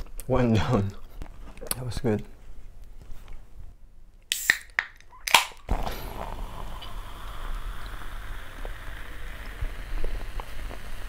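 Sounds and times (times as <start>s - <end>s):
soda fizzing: 5.3s - 11.0s
soda pouring into a glass: 5.7s - 11.0s.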